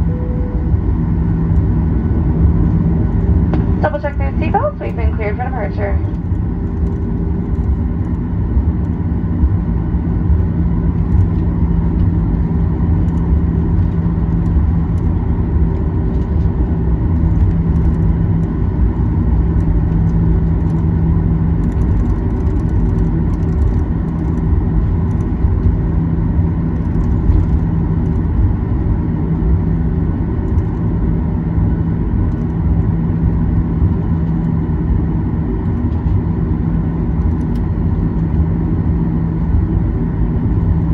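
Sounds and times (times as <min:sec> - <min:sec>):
jet engines humming: 0:00.0 - 0:40.9
low cabin rumble: 0:00.0 - 0:40.9.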